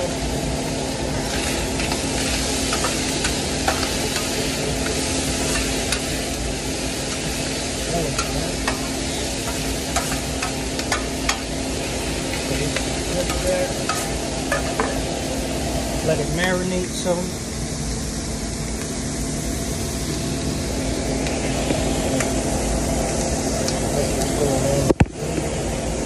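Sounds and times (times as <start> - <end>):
food sizzling on a griddle: 0.0 - 18.3.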